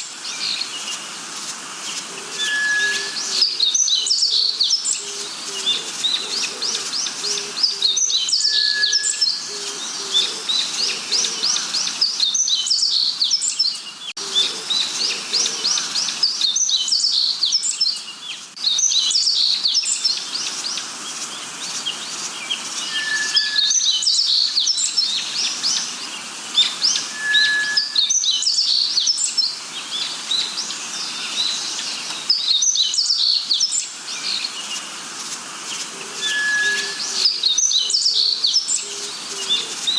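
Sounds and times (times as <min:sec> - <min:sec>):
birds chirping and trilling: 0:00.0 - 0:39.9
whistled bird note: 0:02.4 - 0:04.5, 0:08.3 - 0:09.4, 0:22.8 - 0:24.6, 0:26.9 - 0:29.0, 0:36.2 - 0:38.3.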